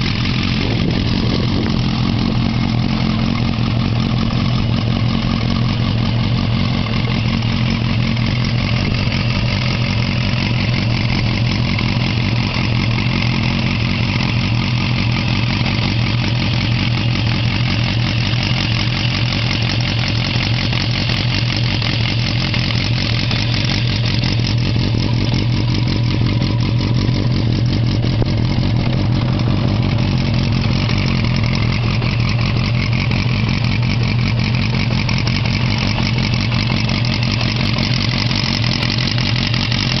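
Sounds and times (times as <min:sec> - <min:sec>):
motorcycle engine idling: 0:00.0 - 0:40.0.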